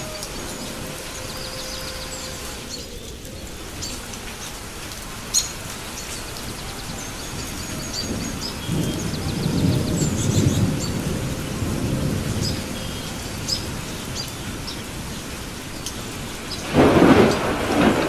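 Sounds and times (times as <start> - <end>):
steady rain: 0.0 - 18.0
low thunder rumbling: 5.7 - 18.0.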